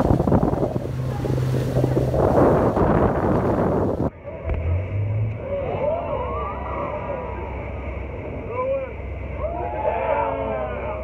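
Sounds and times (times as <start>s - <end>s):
wind buffeting microphone: 0.0s - 4.1s
boat engine humming: 0.0s - 11.0s.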